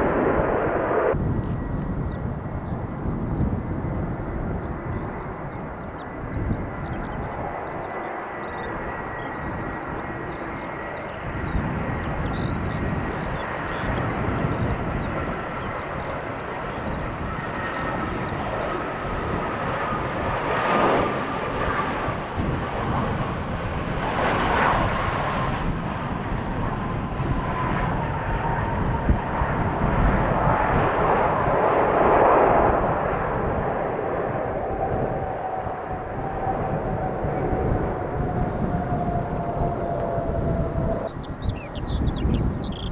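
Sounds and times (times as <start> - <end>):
jet airliner engines roaring: 0.0 - 42.9.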